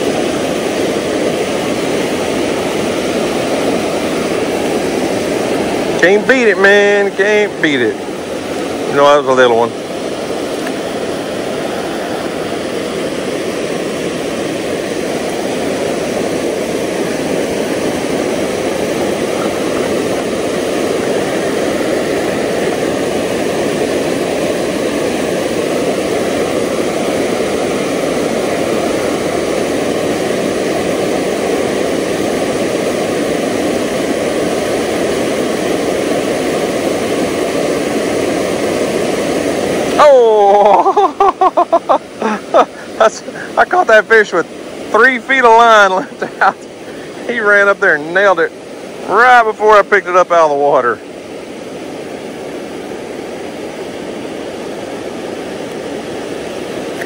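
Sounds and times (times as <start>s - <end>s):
creek water rushing: 0.0s - 57.0s.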